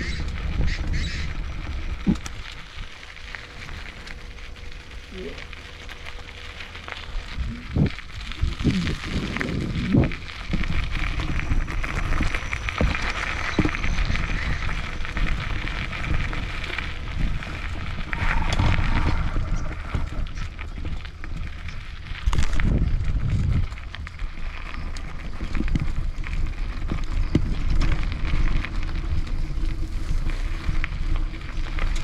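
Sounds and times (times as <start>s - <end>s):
bicycle tyres crunching on track: 0.0s - 32.0s
wind rumbling on microphone: 0.0s - 32.0s
bike knocks and rattles: 8.3s - 32.0s.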